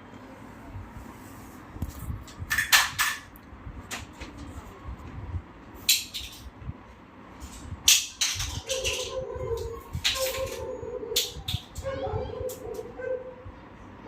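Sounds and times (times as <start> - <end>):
small hard objects clicking: 7.8 - 9.1.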